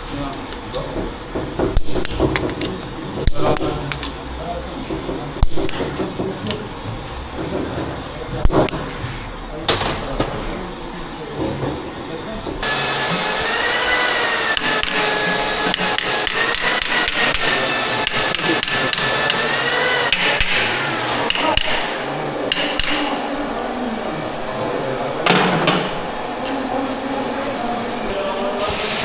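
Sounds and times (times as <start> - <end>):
hammer striking metal: 12.6 - 23.2.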